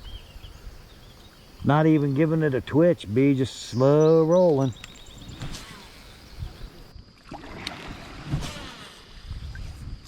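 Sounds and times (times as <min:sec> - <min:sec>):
water sloshing around a kayak: 0:04.3 - 0:10.0.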